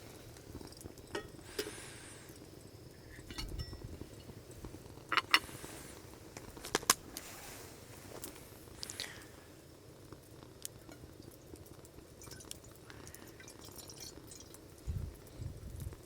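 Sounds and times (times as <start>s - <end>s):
tableware clinking: 3.1s - 4.3s.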